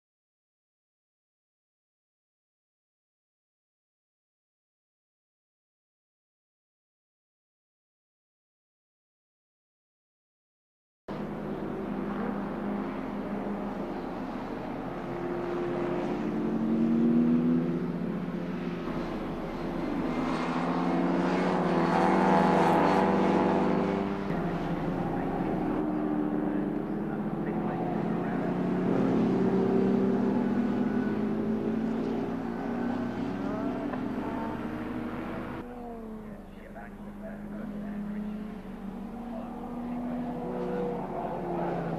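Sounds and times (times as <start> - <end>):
racing car engines: 11.1 - 41.9.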